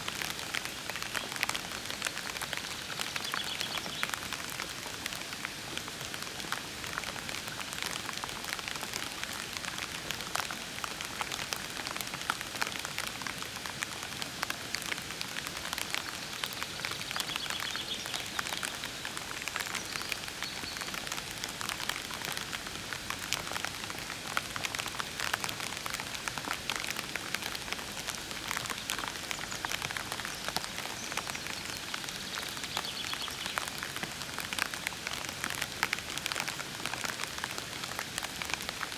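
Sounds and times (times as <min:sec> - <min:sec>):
soft rain falling: 0:00.0 - 0:38.9.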